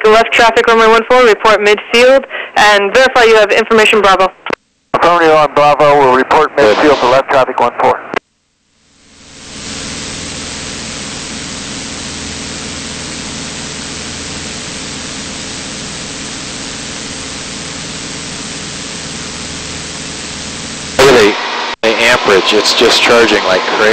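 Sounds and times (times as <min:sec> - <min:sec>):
airflow hiss: 0:06.6 - 0:07.3.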